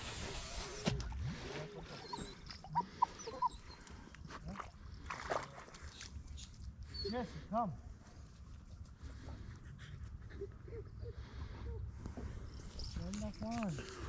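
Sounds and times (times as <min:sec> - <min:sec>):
small dog whining: 0:02.0 - 0:03.9.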